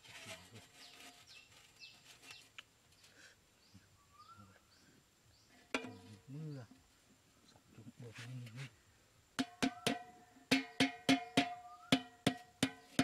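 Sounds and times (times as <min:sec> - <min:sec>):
birds chirping: 0:00.7 - 0:08.9, 0:09.5 - 0:12.2
sharp knock: 0:05.8 - 0:06.1, 0:09.4 - 0:13.0.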